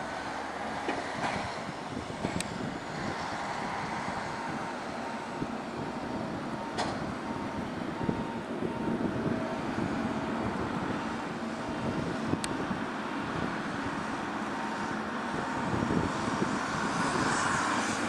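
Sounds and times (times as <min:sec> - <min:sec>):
jet engines running: 0:00.0 - 0:18.0
wind on microphone: 0:01.0 - 0:18.0.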